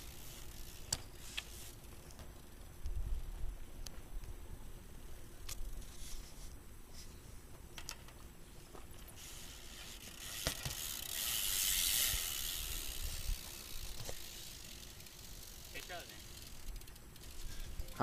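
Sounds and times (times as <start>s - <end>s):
bike tyres hissing on concrete: 0.0s - 2.5s, 5.8s - 7.1s, 8.5s - 18.0s
bike clicks: 0.0s - 3.0s, 5.4s - 6.0s, 7.5s - 18.0s.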